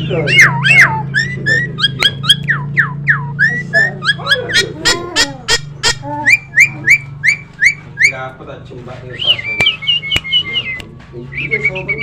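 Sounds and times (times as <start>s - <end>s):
myna whistled calls: 0.0s - 8.3s, 9.1s - 12.0s
sharp clicking snaps: 9.5s - 11.1s.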